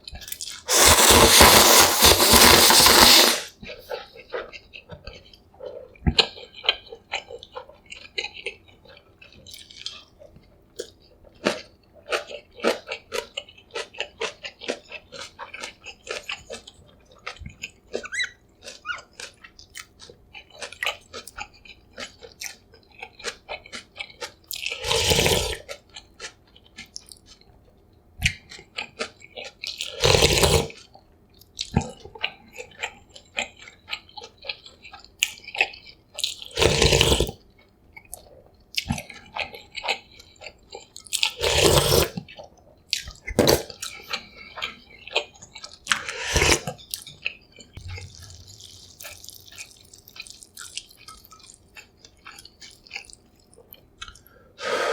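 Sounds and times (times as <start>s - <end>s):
loud slurp: 0.7s - 3.5s, 24.8s - 25.6s, 30.0s - 30.7s, 36.6s - 37.3s, 41.4s - 42.2s, 45.9s - 46.7s, 47.8s - 51.6s
chewing with wet mouth clicks: 4.2s - 24.8s, 25.5s - 30.0s, 30.7s - 36.6s, 37.2s - 54.4s.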